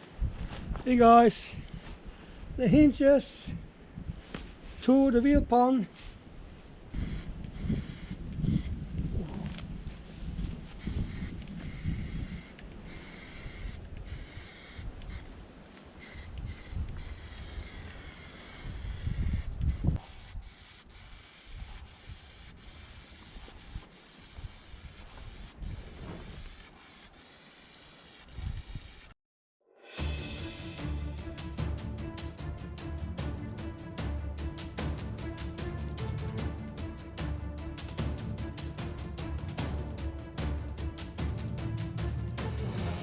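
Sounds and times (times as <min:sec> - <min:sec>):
hand sanding metal: 0:16.0 - 0:28.2.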